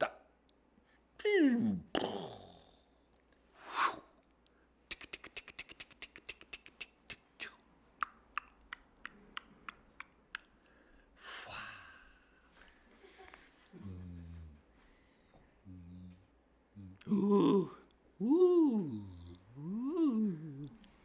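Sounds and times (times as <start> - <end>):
short breathy hisses: 3.6 - 4.1.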